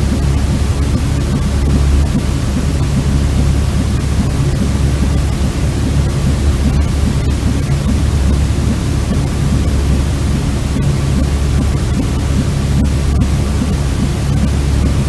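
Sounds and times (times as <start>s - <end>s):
steady white noise: 0.0s - 15.0s.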